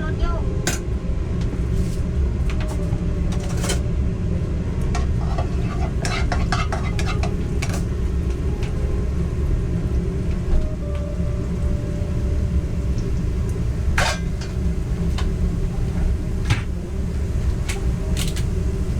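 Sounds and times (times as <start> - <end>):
low rumble: 0.0 - 18.9
food frying in a pan: 4.6 - 18.9
cookware clinking: 4.9 - 7.9, 14.0 - 14.6
metal utensil scraping a pan: 5.0 - 7.9.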